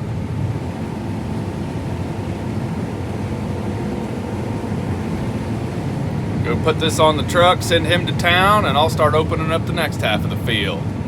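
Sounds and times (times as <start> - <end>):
combine harvester engine droning: 0.0 - 11.0.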